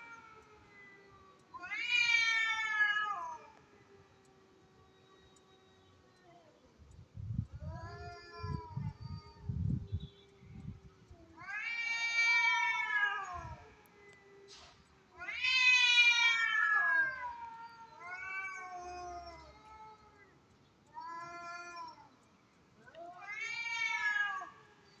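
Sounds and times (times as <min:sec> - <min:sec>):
cats yowling: 0:00.0 - 0:04.4, 0:07.6 - 0:09.5, 0:11.0 - 0:22.2, 0:22.8 - 0:25.0.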